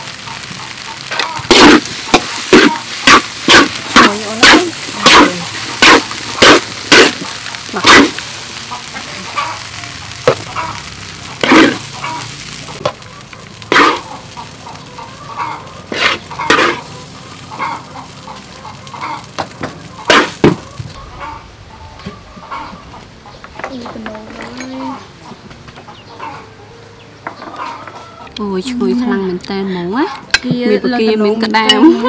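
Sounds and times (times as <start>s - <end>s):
rice sizzling in a hot pan: 0.0s - 21.0s
spatula scraping a pan: 0.7s - 9.7s, 11.3s - 14.3s, 15.3s - 16.9s, 20.0s - 20.5s.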